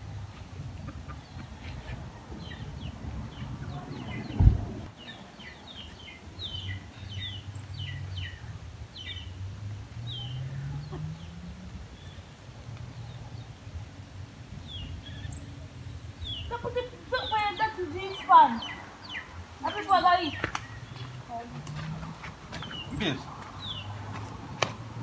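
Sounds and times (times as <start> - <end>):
small birds chirping: 0.2 - 25.0
loud low thump: 4.2 - 4.9.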